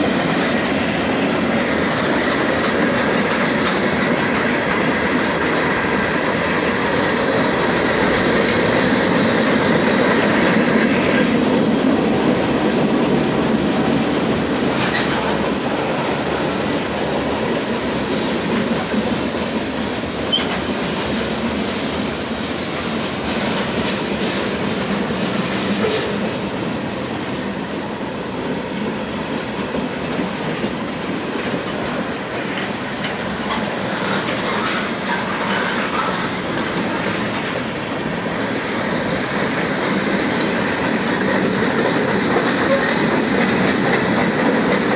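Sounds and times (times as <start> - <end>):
train wheels on rails: 0.0 - 44.9
faint high wheel squeal: 20.4 - 21.6.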